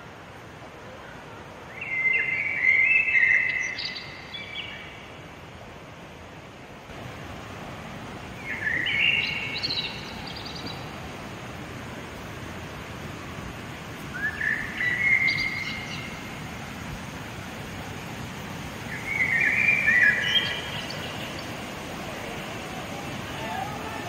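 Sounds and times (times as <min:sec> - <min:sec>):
outdoor background hiss: 0:00.0 - 0:24.0
bird singing: 0:01.7 - 0:05.1, 0:08.4 - 0:11.0, 0:14.1 - 0:16.2, 0:18.9 - 0:21.6.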